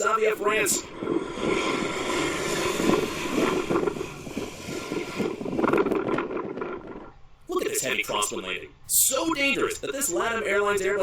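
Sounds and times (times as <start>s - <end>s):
wind buffeting microphone: 0.0s - 7.5s
jet engines whining: 0.0s - 11.0s.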